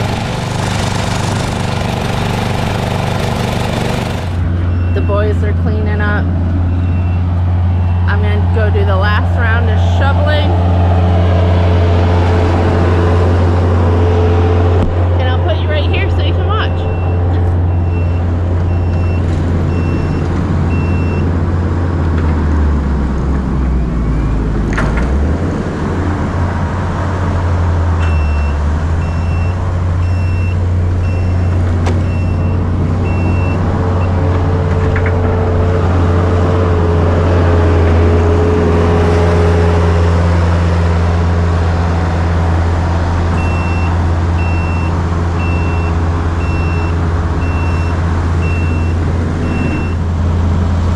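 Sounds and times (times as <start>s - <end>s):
vehicle engine running: 0.0s - 50.9s
backup alarm beeping: 4.6s - 8.3s, 15.2s - 21.3s, 28.0s - 34.3s, 43.3s - 50.1s.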